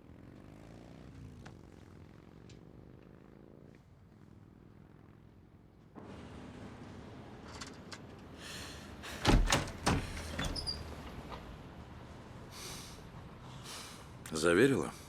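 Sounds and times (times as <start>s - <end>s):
loud clunks: 9.1s - 11.1s
heavy door sliding shut: 9.1s - 11.4s.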